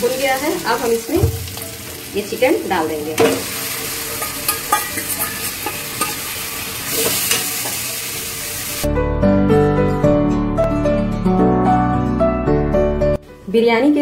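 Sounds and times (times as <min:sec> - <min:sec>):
chicken and onions sizzling in oil: 0:00.0 - 0:08.9
soft piano music: 0:00.0 - 0:14.0
metal spatula scraping pan: 0:03.5 - 0:07.8.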